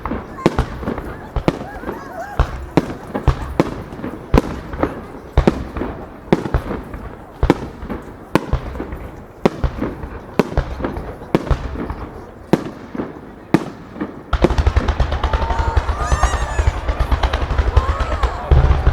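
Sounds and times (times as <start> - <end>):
small firework pops: 0.0 - 18.9
firework shells bursting: 13.6 - 18.9
rumbling echo: 14.4 - 18.9.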